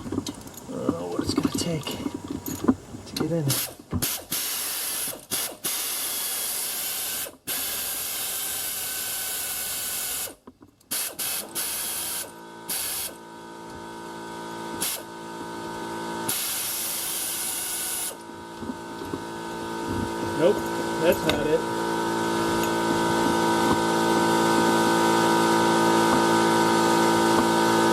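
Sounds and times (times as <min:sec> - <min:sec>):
exhaust air hissing: 0:00.0 - 0:08.9, 0:14.8 - 0:15.2, 0:16.2 - 0:18.2
pneumatic air ratchet: 0:03.5 - 0:13.2, 0:14.8 - 0:15.2, 0:16.2 - 0:18.3
steady hum: 0:16.3 - 0:26.4.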